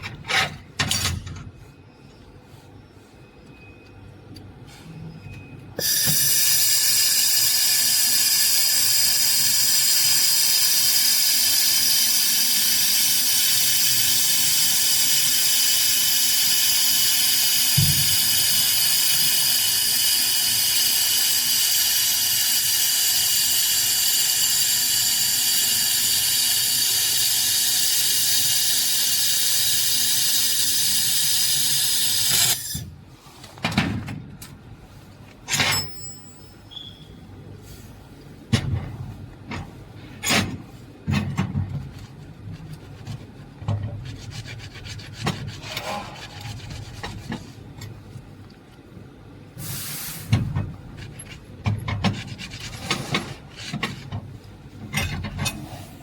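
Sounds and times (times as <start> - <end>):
laser welder hissing: 5.8 - 32.6, 49.6 - 50.3.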